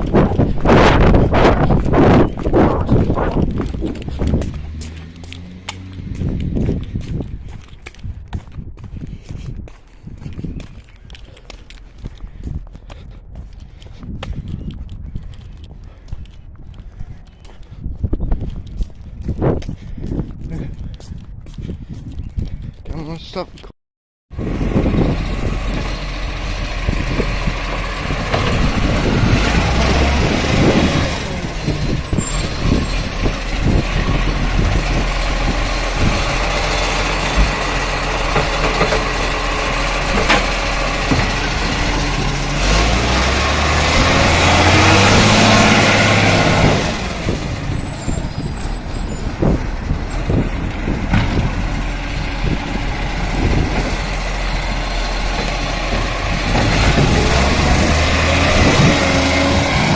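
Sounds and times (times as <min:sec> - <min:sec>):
garbage truck engine droning: 0:24.4 - 0:59.9
rushing noise: 0:24.4 - 0:59.9
knocks and clatter: 0:31.5 - 0:42.4.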